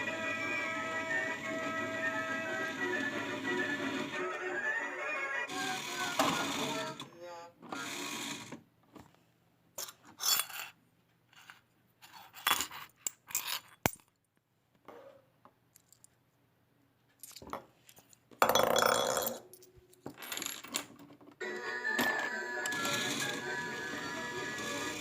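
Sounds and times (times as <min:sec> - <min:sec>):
coins clinking and rattling: 0:17.2 - 0:20.9.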